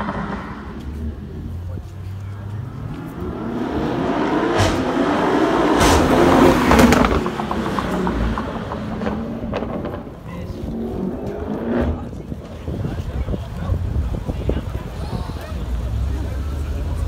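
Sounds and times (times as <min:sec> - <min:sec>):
exhaust cracks: 0:00.0 - 0:13.1
car engine accelerating past: 0:02.5 - 0:12.3.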